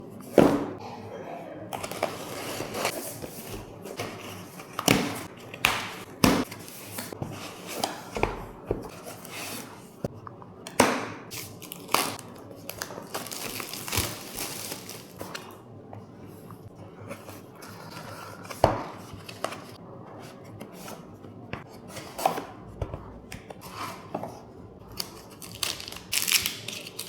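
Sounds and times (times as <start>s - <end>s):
packaging crinkling and tearing: 11.3s - 15.5s, 25.0s - 27.0s.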